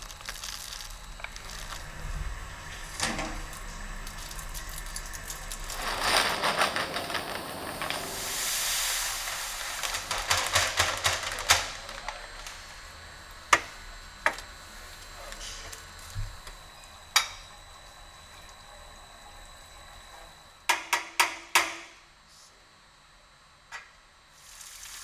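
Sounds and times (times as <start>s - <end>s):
rapid crackling and clicking: 0.0s - 16.7s
smooth hiss: 0.0s - 20.6s, 24.3s - 25.0s.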